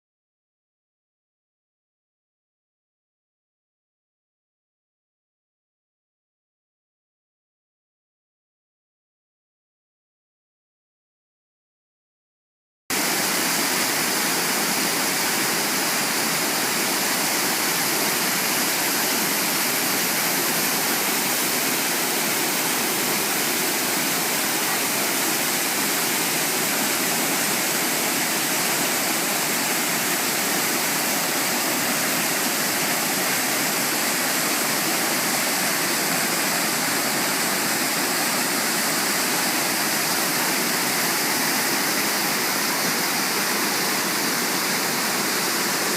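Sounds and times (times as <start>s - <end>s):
rushing mountain water: 12.9s - 45.9s.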